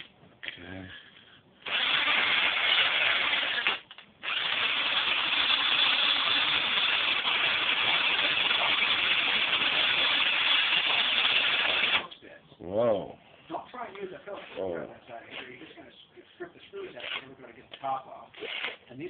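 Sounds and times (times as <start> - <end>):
drill spinning against wire brush: 1.6 - 12.1.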